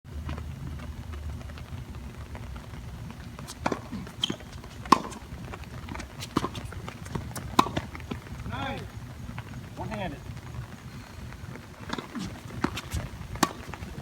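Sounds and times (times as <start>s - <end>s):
steady low rumble: 0.1s - 14.0s
tennis ball struck by rackets: 3.4s - 8.6s, 11.7s - 14.0s.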